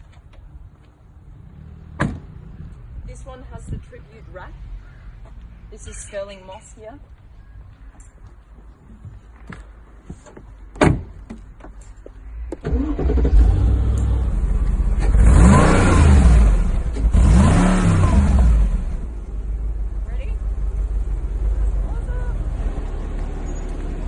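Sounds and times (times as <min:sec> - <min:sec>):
car engine starting and revving: 0:12.6 - 0:19.2.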